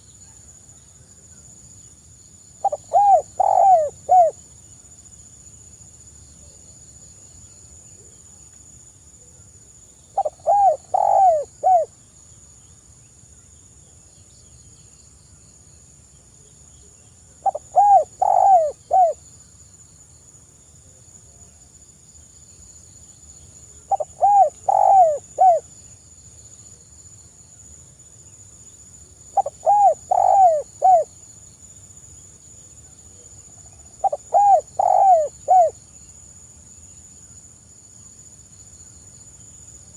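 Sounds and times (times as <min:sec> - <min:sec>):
dove cooing: 0:02.6 - 0:04.4, 0:10.2 - 0:11.9, 0:17.4 - 0:19.2, 0:23.9 - 0:25.6, 0:29.4 - 0:31.1, 0:34.0 - 0:35.8.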